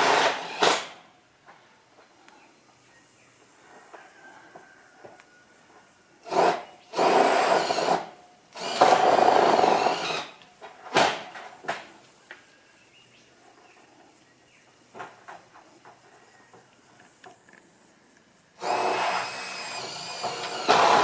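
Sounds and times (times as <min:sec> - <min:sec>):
power tool working wood: 0:06.3 - 0:08.0, 0:08.6 - 0:10.4, 0:18.6 - 0:21.0.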